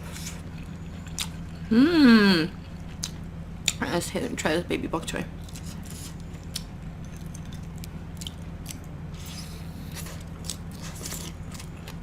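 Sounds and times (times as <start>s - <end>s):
steady low hum: 0.0s - 12.0s
crunchy chewing: 5.4s - 12.0s.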